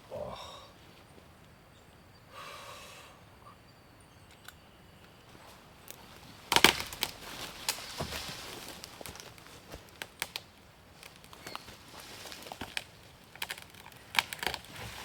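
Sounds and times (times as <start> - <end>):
small wood snaps and clicks: 4.3 - 5.2, 5.8 - 15.0
wood cracking: 5.8 - 15.0.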